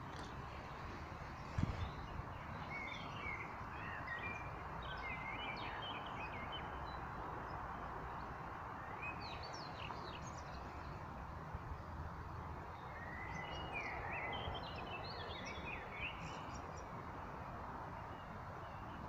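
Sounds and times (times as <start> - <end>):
outdoor background rush: 0.0 - 19.0
small birds chirping: 8.8 - 11.0, 12.7 - 17.0.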